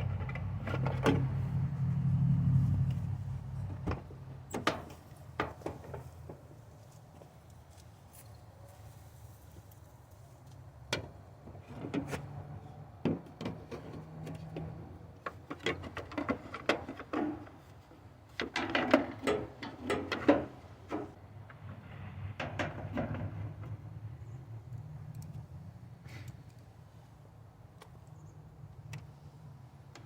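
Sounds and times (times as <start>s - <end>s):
knocks and clatter on metal panels: 3.6s - 6.5s, 13.0s - 17.7s, 18.3s - 23.8s.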